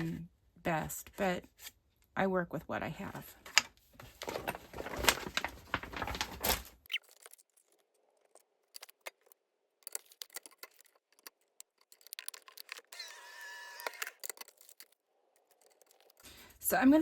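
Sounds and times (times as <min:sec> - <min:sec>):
foil card rustling: 0:03.5 - 0:09.3.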